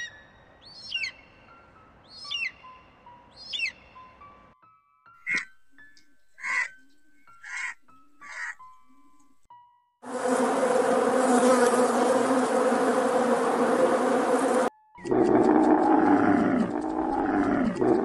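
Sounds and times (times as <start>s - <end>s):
bees buzzing: 10.1s - 18.0s
camel calling: 15.0s - 18.0s.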